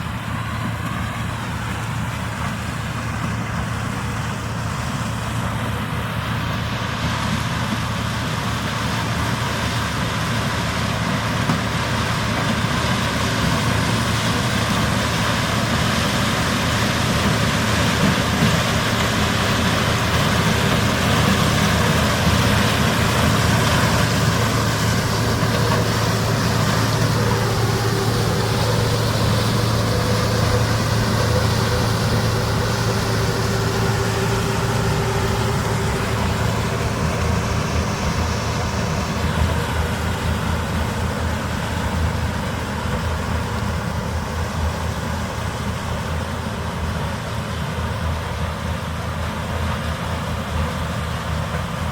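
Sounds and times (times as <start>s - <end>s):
steady whine: 0.0s - 51.8s
combine harvester running: 0.0s - 51.9s
tractors running: 0.0s - 51.9s.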